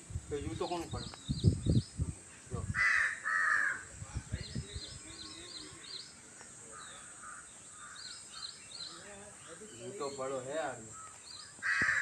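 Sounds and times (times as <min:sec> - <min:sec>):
small birds chirping: 0:00.3 - 0:12.0
loud harsh bird calls: 0:02.7 - 0:03.9, 0:04.7 - 0:12.0.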